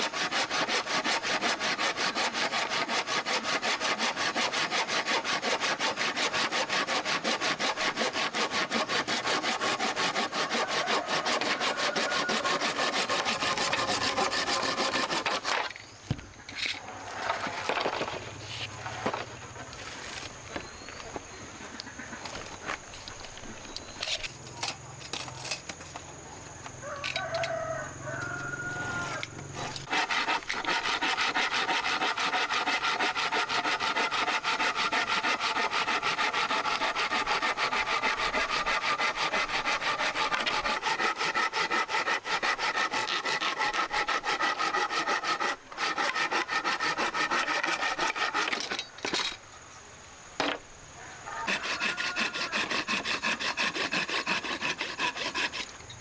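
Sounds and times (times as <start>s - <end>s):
fast rasping scrape: 0.0s - 15.8s, 28.8s - 48.8s, 51.4s - 55.8s.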